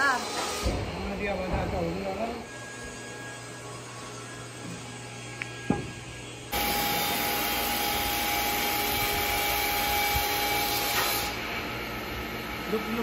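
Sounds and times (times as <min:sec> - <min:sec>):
sawmill machinery running: 0:00.0 - 0:13.0.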